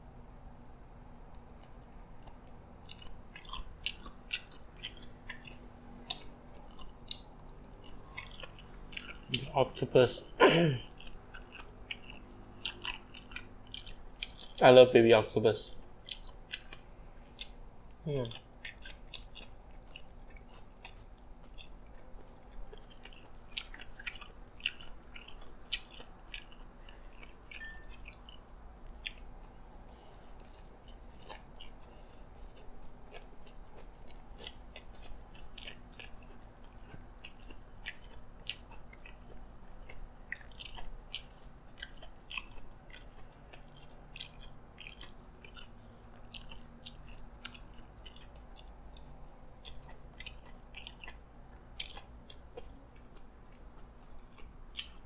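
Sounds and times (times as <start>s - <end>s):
chewing with mouth clicks: 0.4s - 14.6s, 15.6s - 55.0s.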